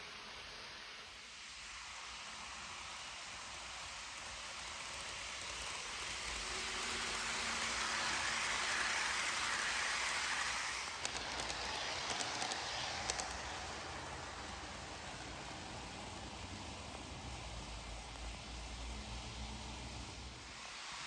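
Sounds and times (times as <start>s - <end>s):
train wheels rushing on rail: 0.0s - 21.0s
sharp clicks: 10.9s - 13.4s.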